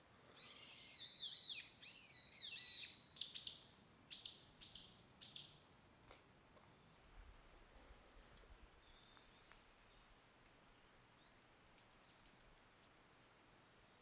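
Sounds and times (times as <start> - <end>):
songbird singing: 0.3 - 7.0, 8.7 - 12.6.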